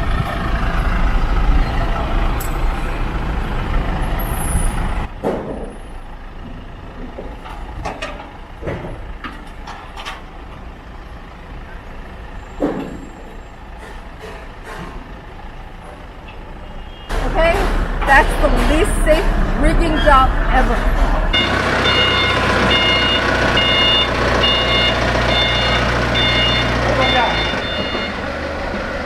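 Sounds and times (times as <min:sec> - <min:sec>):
truck engine rumbling: 0:00.0 - 0:29.0
sharp knocks and clanks: 0:04.6 - 0:10.7, 0:12.5 - 0:16.4, 0:17.1 - 0:26.8.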